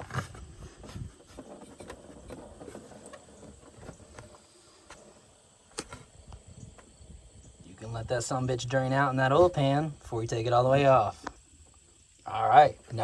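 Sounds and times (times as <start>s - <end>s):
oil filter scraping and clicking: 0.0s - 5.1s, 5.7s - 6.9s.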